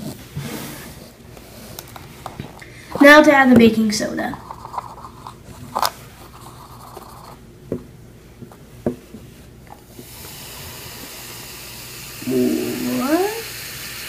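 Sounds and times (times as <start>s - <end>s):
fizzing hiss: 9.9s - 14.0s.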